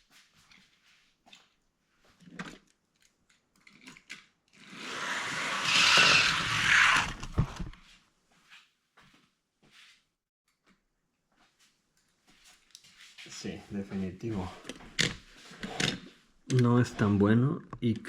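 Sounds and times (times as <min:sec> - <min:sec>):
light clicks of handling toys: 0:02.2 - 0:04.4
toy car rolling down track: 0:03.9 - 0:07.7.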